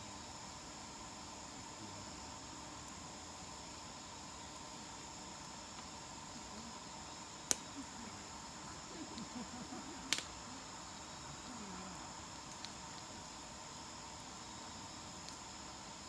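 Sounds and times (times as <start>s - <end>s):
crickets chirring: 0.0s - 16.0s
campfire wood popping: 7.4s - 7.9s, 8.9s - 10.4s, 12.3s - 13.4s, 15.0s - 15.5s.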